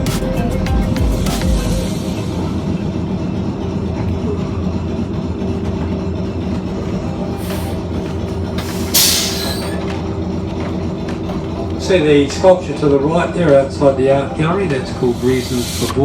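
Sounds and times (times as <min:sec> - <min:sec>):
tram rumbling with motor hum: 0:00.0 - 0:16.0
short bursts of hiss: 0:15.1 - 0:16.0.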